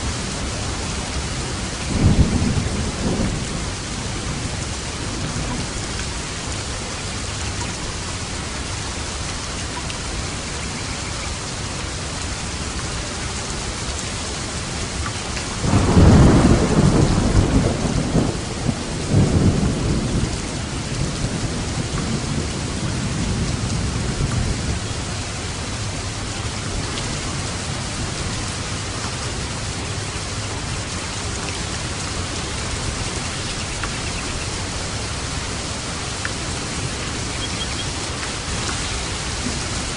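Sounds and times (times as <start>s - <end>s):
steady rain falling: 0.0s - 39.9s
thunder clap rumbling: 1.2s - 6.0s, 15.6s - 29.8s.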